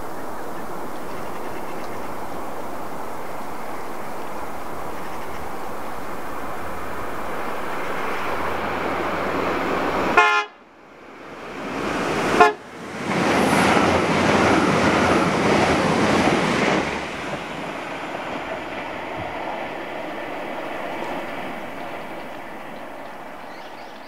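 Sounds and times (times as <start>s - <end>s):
train engine and wheels passing: 0.0s - 24.0s
train horn toots: 10.1s - 10.6s, 12.4s - 12.7s.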